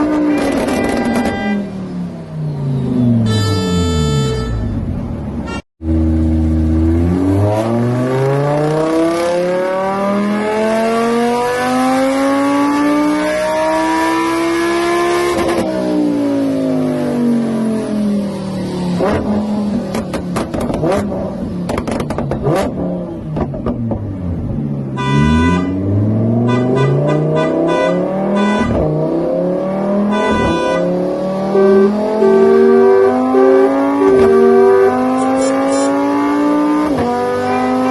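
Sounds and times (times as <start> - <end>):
sharp clicks and knocks: 19.9 - 21.0
car engine accelerating: 30.8 - 37.9.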